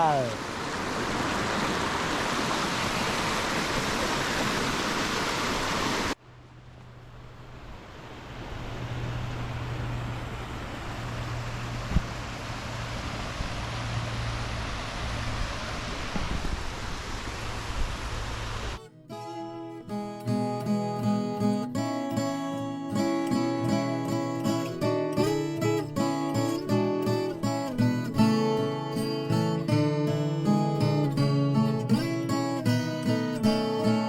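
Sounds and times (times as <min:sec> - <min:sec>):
waterfall rushing: 0:00.0 - 0:06.2, 0:07.4 - 0:18.8.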